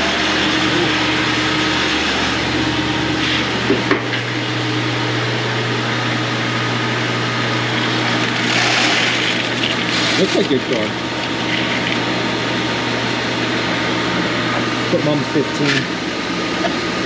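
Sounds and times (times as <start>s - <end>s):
grain auger running: 0.0s - 3.7s, 7.4s - 13.5s
low hum: 0.0s - 17.0s.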